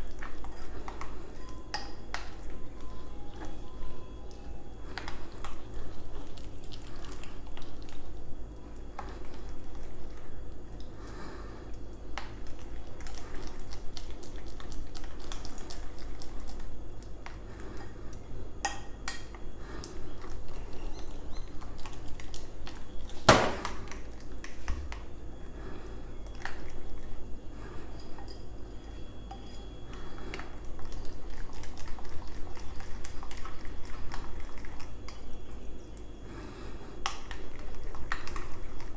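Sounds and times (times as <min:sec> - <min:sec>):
utensil beating batter in bowl: 0:11.6 - 0:36.1, 0:36.7 - 0:38.9.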